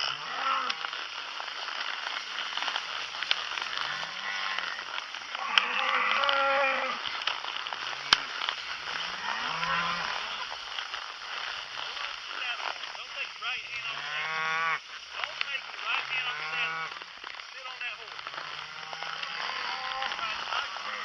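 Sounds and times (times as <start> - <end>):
cattle mooing: 0.0 - 1.0, 3.5 - 10.5, 13.7 - 14.8, 15.9 - 17.0, 18.4 - 21.0.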